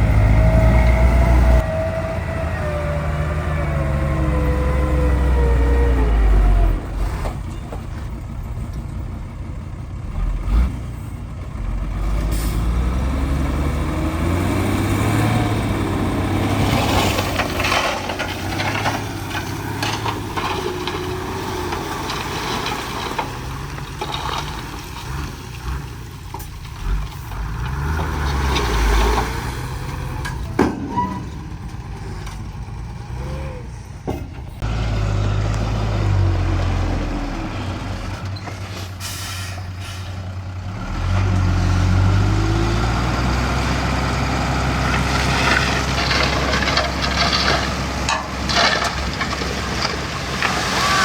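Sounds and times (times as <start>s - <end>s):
heavy diesel engines running: 0.0s - 51.0s
clattering: 16.6s - 32.5s, 44.8s - 51.0s.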